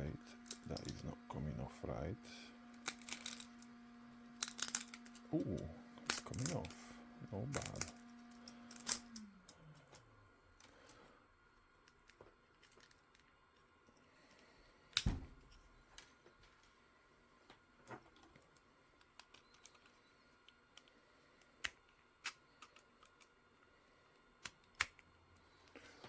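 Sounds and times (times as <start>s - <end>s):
plastic parts and tools clicking: 4.4s - 5.3s, 18.0s - 23.4s.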